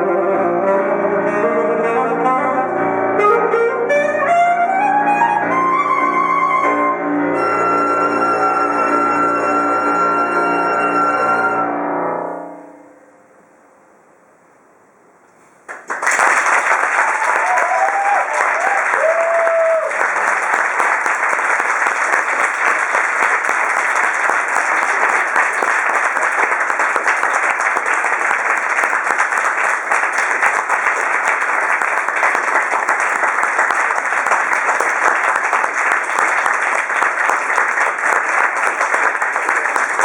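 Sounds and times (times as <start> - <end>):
audience applauding: 15.7 - 40.0.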